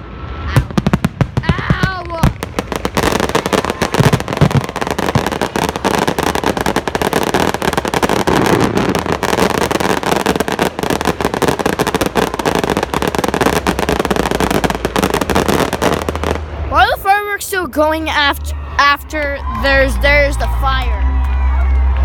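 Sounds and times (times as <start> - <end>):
low rumble: 0.0 - 22.0
fireworks crackling pops: 0.4 - 16.8.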